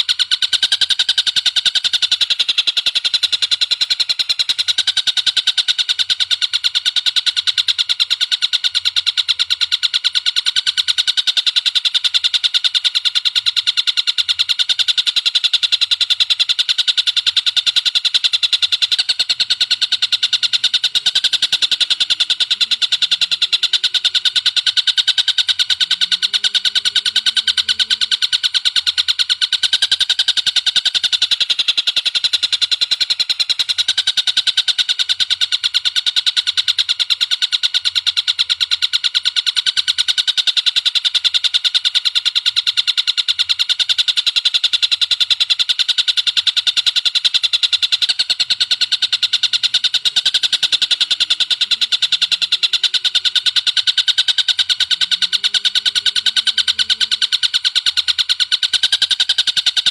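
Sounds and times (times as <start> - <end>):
bird trilling: 0.0 - 59.9.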